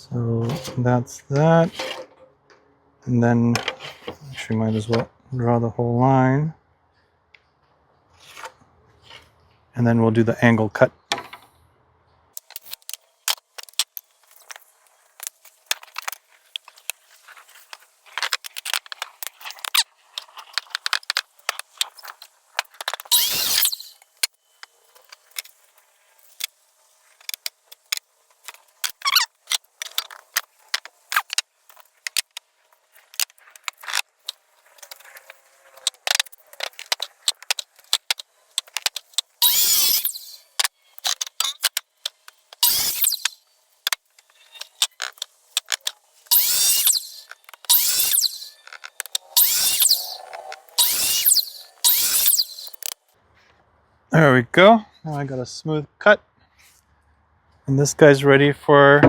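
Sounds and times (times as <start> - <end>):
tools clicking knocking and scraping: 0.4 - 2.6, 3.5 - 5.1, 11.0 - 11.5.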